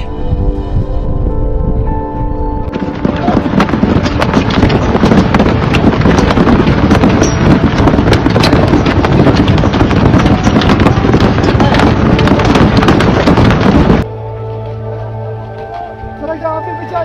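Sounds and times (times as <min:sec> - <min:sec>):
avalanche rumble with crackling: 0:01.1 - 0:14.1.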